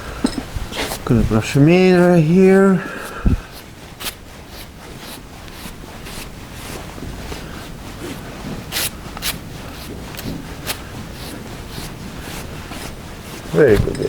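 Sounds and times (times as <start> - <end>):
brush rasping through horse mane: 0.4 - 14.0.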